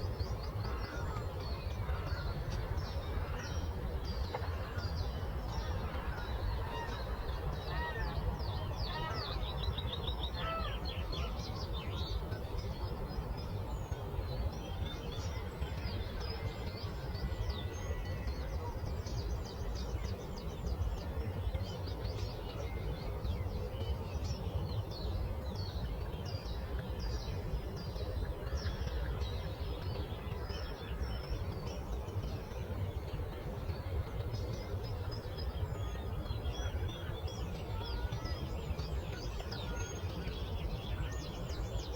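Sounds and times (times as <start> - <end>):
songbirds chirping: 0.0 - 41.9.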